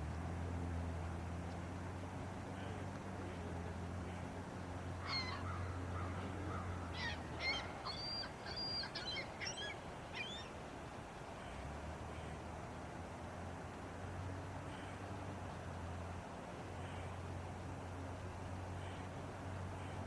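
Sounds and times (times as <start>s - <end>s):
bird calling: 5.0s - 10.6s.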